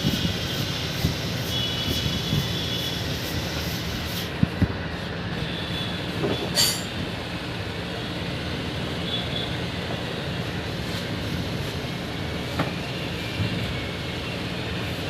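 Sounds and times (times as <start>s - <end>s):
mechanical rumble and hiss: 0.0s - 15.0s
sharp metallic clink: 6.5s - 7.0s.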